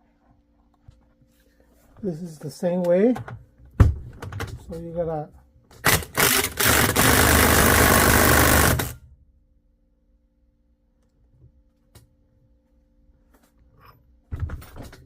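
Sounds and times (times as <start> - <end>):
impact wrench hammering: 5.8 - 9.0.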